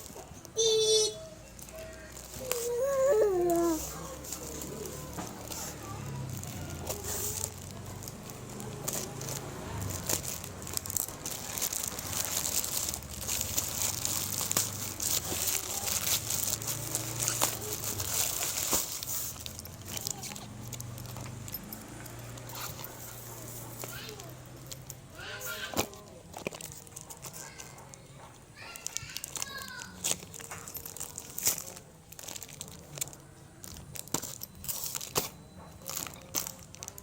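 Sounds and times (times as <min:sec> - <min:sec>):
packaging crinkling and rustling: 0:01.5 - 0:37.0
high whining vocal call: 0:02.3 - 0:04.2.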